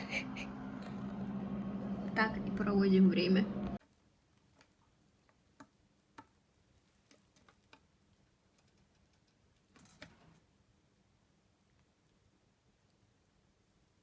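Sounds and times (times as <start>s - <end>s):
soft rustle: 6.5s - 8.2s.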